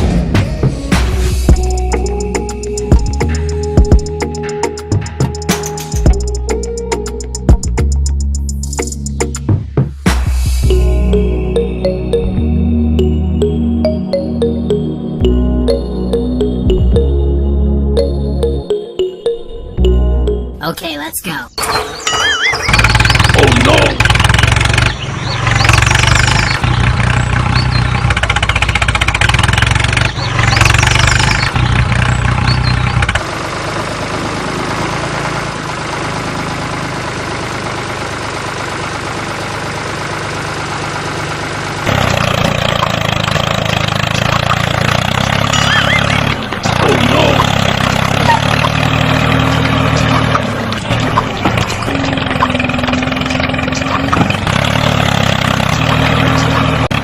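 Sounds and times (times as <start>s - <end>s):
small engine running: 22.0s - 57.0s.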